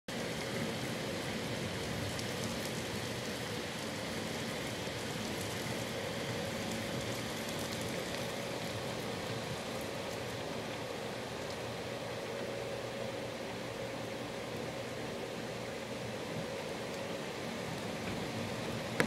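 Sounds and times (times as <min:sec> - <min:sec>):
steady rain: 0:00.1 - 0:19.0
rain drop ticks: 0:00.3 - 0:12.5, 0:16.3 - 0:19.0.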